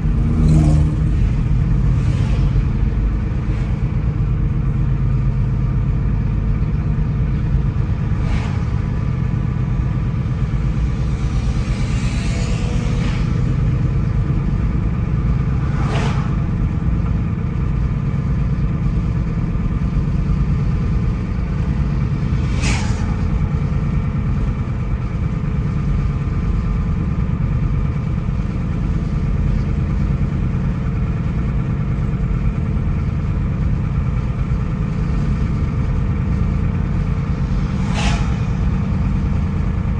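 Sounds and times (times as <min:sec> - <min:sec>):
rushing whoosh: 0:00.0 - 0:05.5, 0:07.7 - 0:17.9, 0:20.4 - 0:25.8, 0:33.6 - 0:39.9
car engine and tyre drone: 0:00.0 - 0:39.9.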